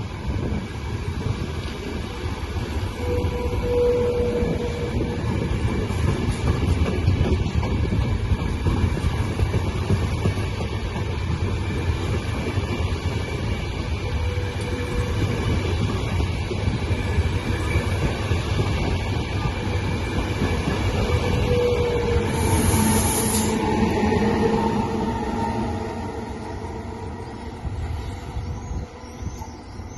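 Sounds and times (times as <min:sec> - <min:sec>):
train rumbling on tracks: 0:00.0 - 0:29.9
short high hiss: 0:22.4 - 0:23.6.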